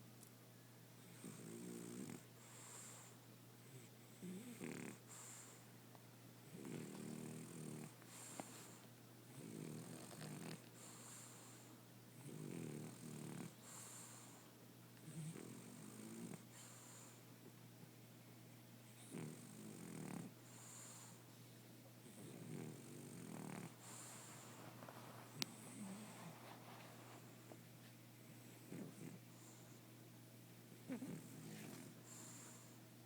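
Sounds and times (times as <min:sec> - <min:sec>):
dog snoring with rattling: 0:01.0 - 0:02.2, 0:04.1 - 0:05.4, 0:06.4 - 0:08.4, 0:09.4 - 0:11.2, 0:12.2 - 0:14.1, 0:15.0 - 0:17.0, 0:19.0 - 0:20.9, 0:22.0 - 0:24.4, 0:25.4 - 0:26.3, 0:28.5 - 0:29.6, 0:30.9 - 0:32.6.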